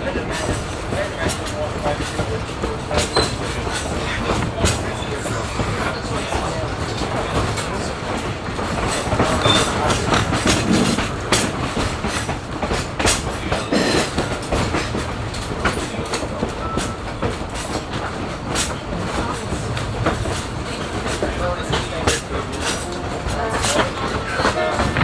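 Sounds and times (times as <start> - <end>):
railroad car rumbling: 0.0 - 25.0
wheel clicks and clunks: 6.3 - 16.9.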